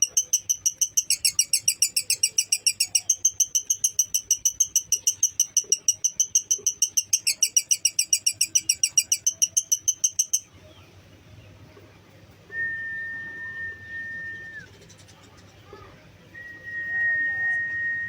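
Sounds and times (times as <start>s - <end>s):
lovebird chattering trill: 0.0s - 10.5s
high whistle-like tone: 16.4s - 18.0s.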